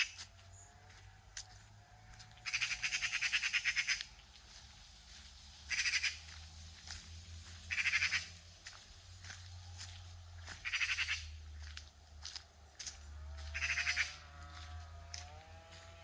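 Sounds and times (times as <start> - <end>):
bird chattering call: 5.7 - 6.2, 7.7 - 8.3, 10.6 - 11.3.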